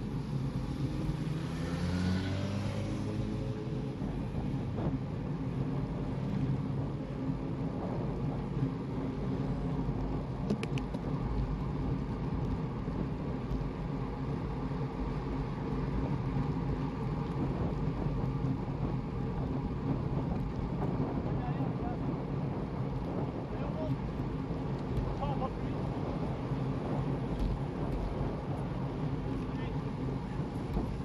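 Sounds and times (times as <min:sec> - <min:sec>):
road noise: 0:00.0 - 0:31.0
wind buffeting: 0:16.0 - 0:31.0.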